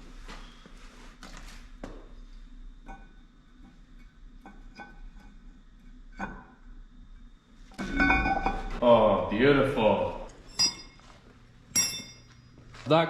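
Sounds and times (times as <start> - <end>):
light metallic clinks and taps: 10.5 - 12.5.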